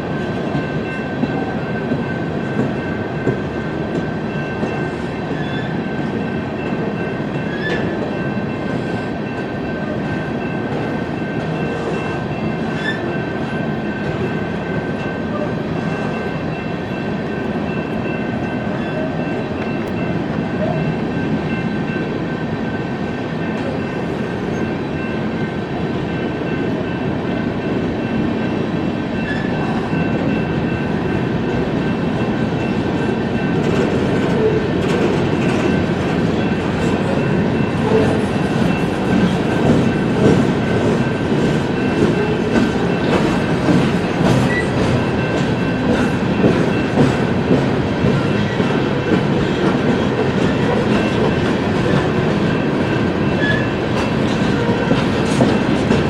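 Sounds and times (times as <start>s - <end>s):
train cars rumbling past: 0.0s - 56.0s
wheels clicking over rail joints: 32.6s - 56.0s.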